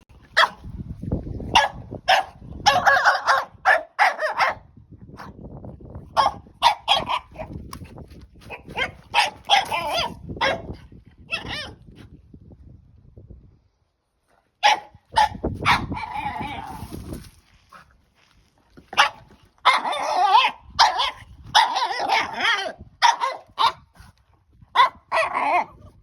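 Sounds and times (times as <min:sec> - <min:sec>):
puppy barking and yapping: 0:00.3 - 0:00.6, 0:01.5 - 0:04.6, 0:06.2 - 0:07.6, 0:08.4 - 0:11.8, 0:14.6 - 0:17.0, 0:18.8 - 0:24.0, 0:24.7 - 0:25.9.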